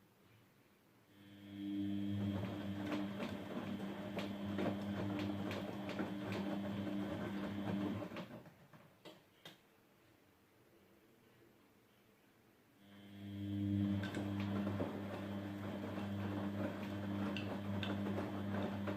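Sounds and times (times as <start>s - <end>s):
washing machine hum with knocks: 2.0s - 9.1s, 13.8s - 18.9s.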